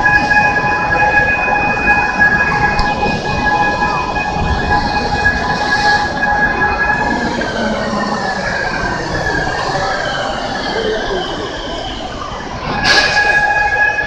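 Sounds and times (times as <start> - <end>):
overhead crane whine: 0.0 - 14.0.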